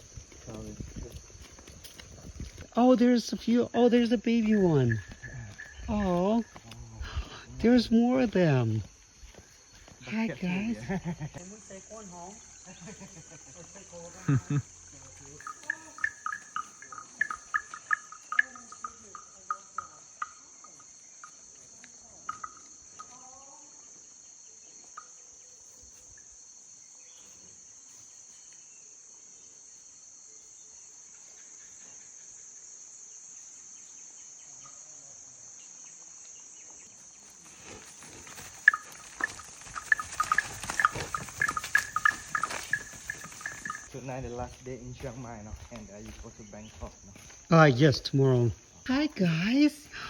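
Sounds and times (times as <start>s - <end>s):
insects droning: 0.0s - 50.0s
rapid sharp chirping clicks: 38.3s - 43.9s.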